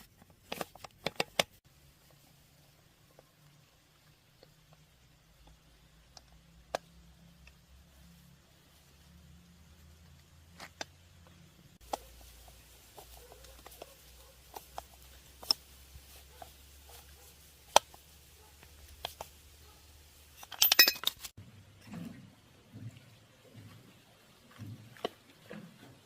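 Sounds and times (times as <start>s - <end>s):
rapid clinking: 20.3s - 21.3s
metal tools clicking and tapping: 20.4s - 21.3s.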